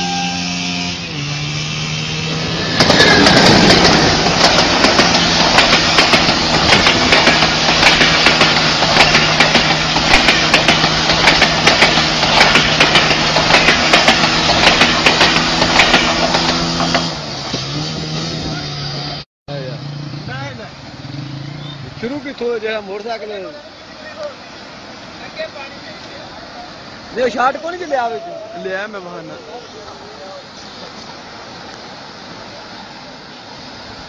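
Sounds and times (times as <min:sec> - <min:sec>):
train rushing through water: 0:00.0 - 0:34.0
rapid clattering: 0:02.8 - 0:17.0.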